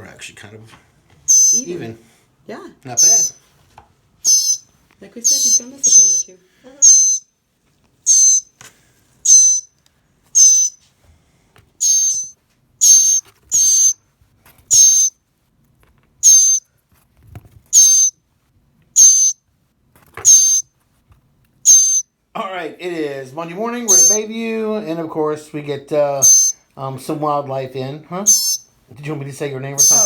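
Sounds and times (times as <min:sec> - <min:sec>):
bird harsh high-pitched calls: 0:01.3 - 0:01.8, 0:03.0 - 0:03.4, 0:04.2 - 0:07.3, 0:08.1 - 0:08.5, 0:09.2 - 0:09.7, 0:10.4 - 0:10.8, 0:11.8 - 0:14.0, 0:14.7 - 0:15.1, 0:16.2 - 0:16.6, 0:17.7 - 0:18.2, 0:19.0 - 0:19.4, 0:20.2 - 0:20.6, 0:21.7 - 0:22.1, 0:23.9 - 0:24.3, 0:26.2 - 0:26.6, 0:28.2 - 0:28.7, 0:29.8 - 0:30.0.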